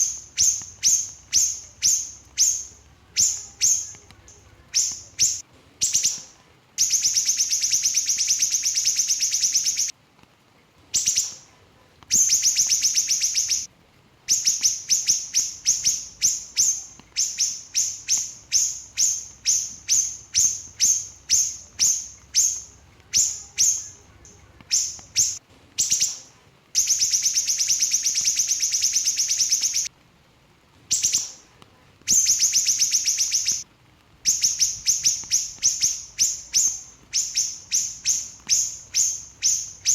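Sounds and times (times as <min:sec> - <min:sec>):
bird singing rapid trills: 0:04.7 - 0:06.2, 0:06.8 - 0:09.9, 0:12.1 - 0:13.7, 0:26.8 - 0:29.9, 0:32.1 - 0:33.6.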